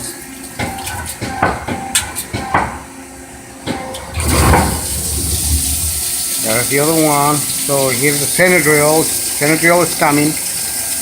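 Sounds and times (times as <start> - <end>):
coolant spraying hiss: 4.2 - 11.0.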